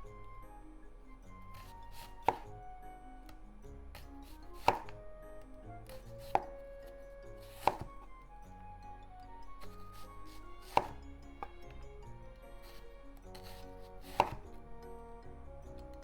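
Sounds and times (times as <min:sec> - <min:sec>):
soft background music: 0:00.0 - 0:16.0
knife slicing onion: 0:01.4 - 0:02.6, 0:03.2 - 0:08.2, 0:09.5 - 0:14.7
knife knocking on cutting board: 0:02.0 - 0:02.5, 0:04.6 - 0:05.0, 0:05.9 - 0:06.6, 0:07.5 - 0:08.0, 0:10.6 - 0:11.7, 0:13.4 - 0:14.5.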